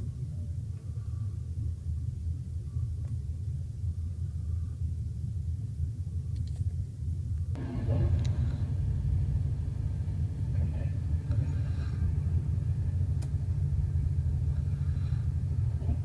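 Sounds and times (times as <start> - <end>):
train wheels rumbling on track: 7.5 - 16.0.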